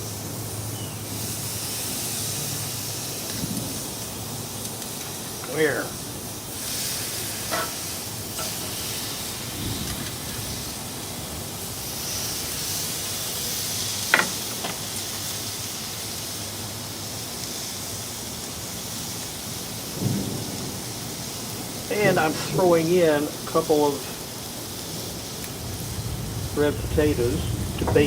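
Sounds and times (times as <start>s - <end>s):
heavy rain hissing: 0.0s - 28.0s
low thunder rumble: 3.4s - 4.4s, 9.3s - 11.5s, 19.9s - 23.5s, 25.2s - 28.0s.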